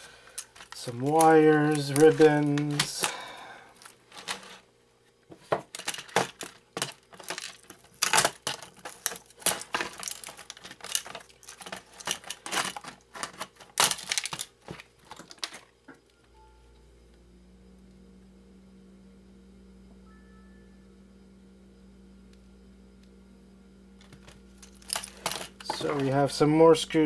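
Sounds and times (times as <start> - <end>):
faint steady hum: 0.0 - 27.0
plastic parts clicking and clattering: 0.3 - 3.2, 3.8 - 4.6, 5.4 - 15.7, 24.0 - 26.3.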